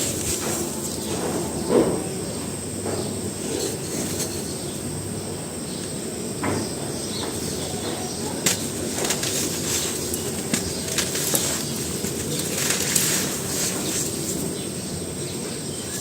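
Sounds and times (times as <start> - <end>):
steady background hiss: 0.0 - 16.0
dry cement crumbling and crunching: 8.4 - 14.2.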